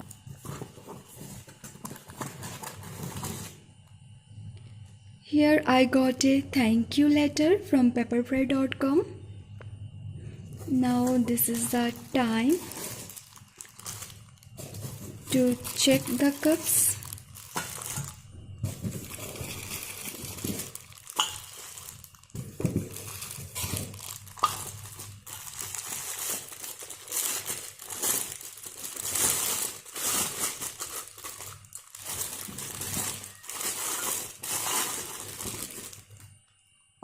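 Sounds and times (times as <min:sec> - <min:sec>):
packaging crinkling and rustling: 0:00.0 - 0:03.6, 0:10.7 - 0:36.4.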